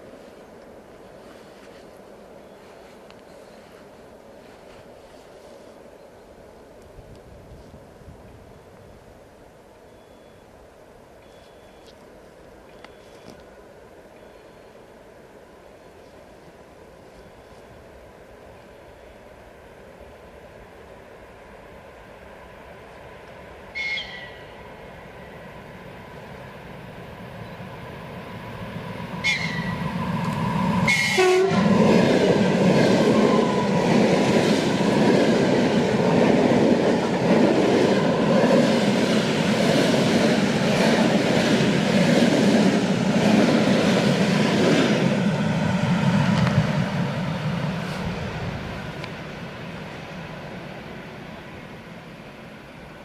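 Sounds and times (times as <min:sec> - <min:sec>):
train rumble and wheel clatter: 0:00.0 - 0:09.2, 0:14.9 - 0:53.0
train horn blast: 0:29.2 - 0:29.8, 0:30.8 - 0:32.4.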